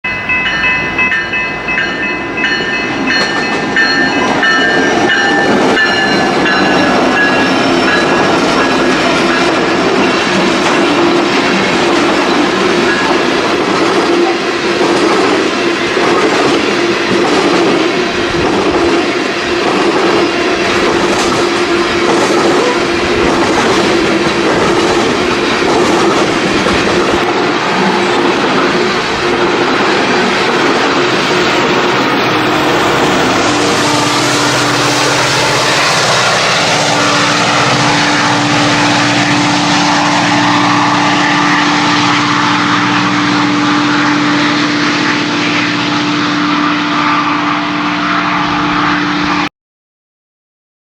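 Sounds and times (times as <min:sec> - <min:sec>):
train wheels on rail: 0:00.0 - 0:49.4
train horn chord: 0:14.1 - 0:14.8, 0:27.1 - 0:49.5
clatter over rail joints: 0:19.8 - 0:27.3.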